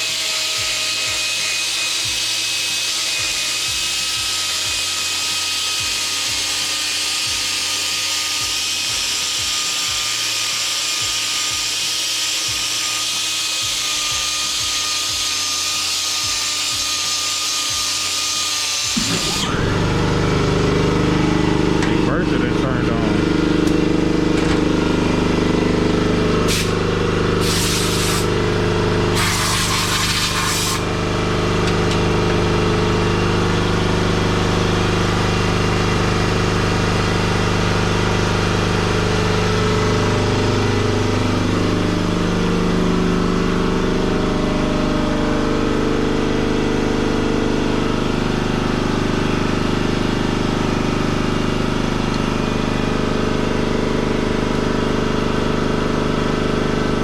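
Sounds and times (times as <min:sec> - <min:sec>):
machine motor humming: 0:17.7 - 0:57.0
air hiss bursts: 0:27.4 - 0:28.3, 0:29.2 - 0:30.8.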